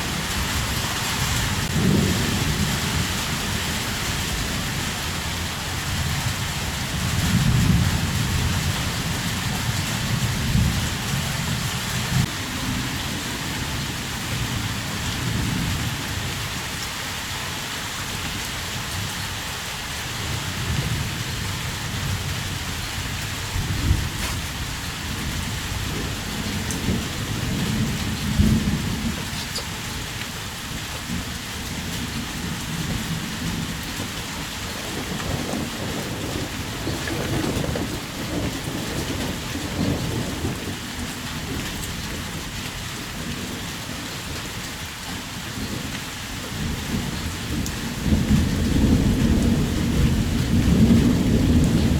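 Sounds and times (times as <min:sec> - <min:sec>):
heavy rain hissing: 0:00.0 - 0:51.9.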